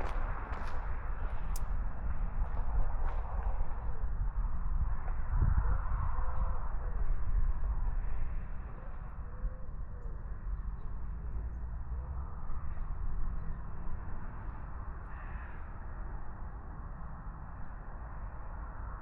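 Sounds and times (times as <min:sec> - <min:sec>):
faint bird calls: 0:15.0 - 0:15.9.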